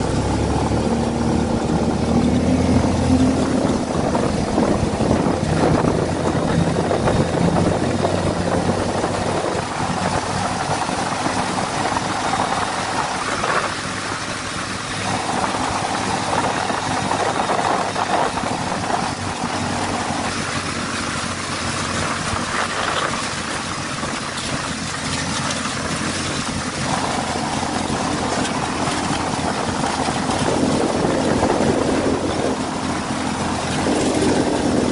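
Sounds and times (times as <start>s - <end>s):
buggy engine revving: 0.0s - 34.9s.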